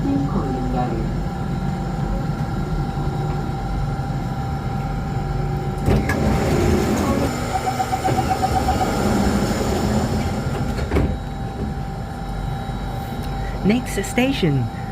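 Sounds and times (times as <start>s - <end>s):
constant whine: 0.0s - 14.9s
metro train rumbling: 0.0s - 14.9s
pulsing tone: 7.0s - 10.4s.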